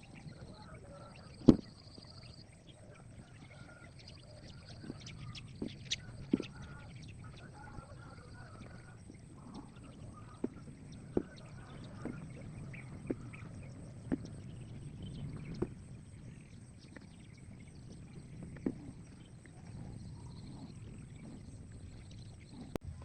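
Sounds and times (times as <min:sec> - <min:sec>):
low outdoor background: 0:00.0 - 0:23.0.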